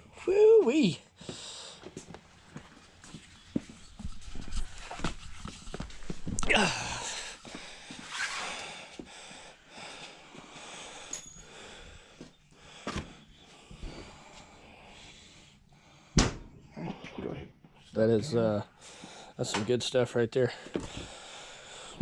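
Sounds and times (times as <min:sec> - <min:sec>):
tools knocking and scuffing: 0:01.8 - 0:06.4.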